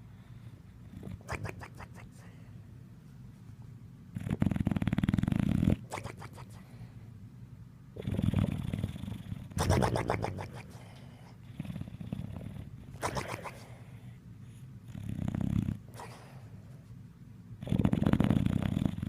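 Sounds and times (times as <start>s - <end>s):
dog snoring: 0.8s - 2.4s, 4.1s - 6.6s, 8.0s - 16.6s, 17.6s - 19.0s.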